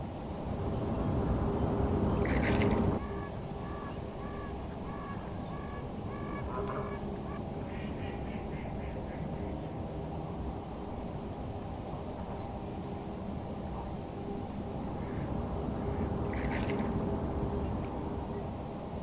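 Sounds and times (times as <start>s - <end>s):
waterfowl honking: 0.5s - 9.2s, 15.0s - 18.2s.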